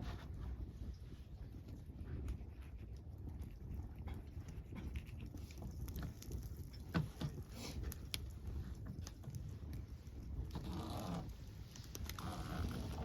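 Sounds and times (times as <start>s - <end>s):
low rumble of burning fire: 0.0s - 13.0s
campfire crackling and popping: 5.2s - 10.7s.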